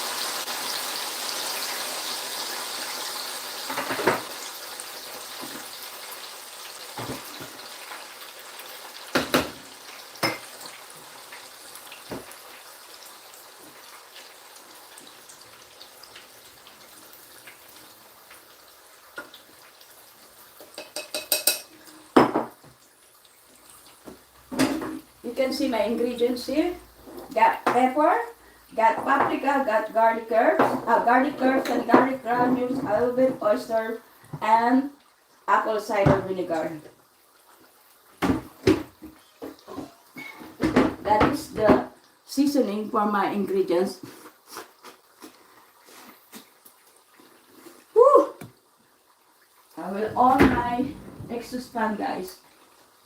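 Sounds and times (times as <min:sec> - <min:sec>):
tofu sizzling in oil: 0:00.0 - 0:50.0, 0:51.7 - 0:53.0
utensil clanking on pan: 0:20.6 - 0:22.6.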